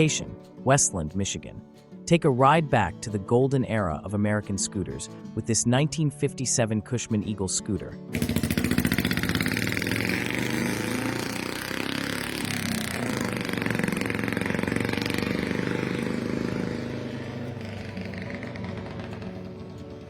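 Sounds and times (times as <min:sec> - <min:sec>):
scooter engine pulsing: 0:08.1 - 0:20.0.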